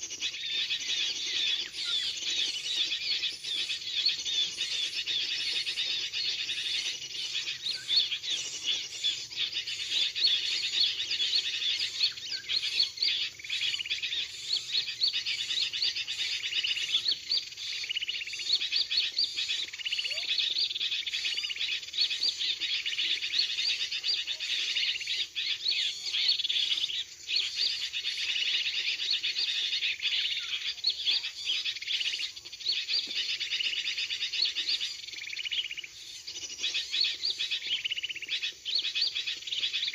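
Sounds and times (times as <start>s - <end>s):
many small birds chirping: 0.0s - 39.9s.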